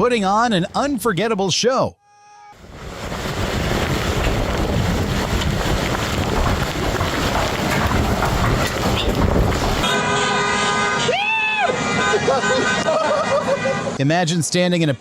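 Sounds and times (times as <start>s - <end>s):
strong wind on microphone: 2.6s - 9.9s.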